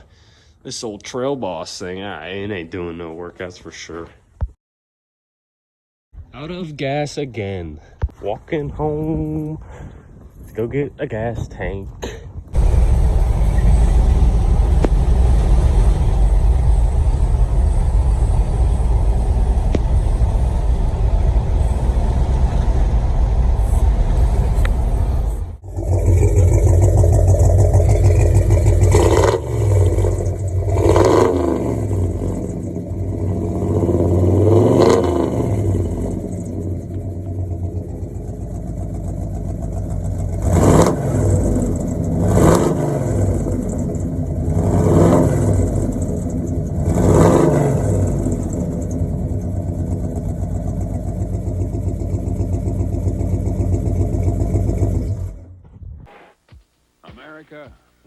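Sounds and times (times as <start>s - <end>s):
truck engine rumbling and revving: 11.5s - 56.5s.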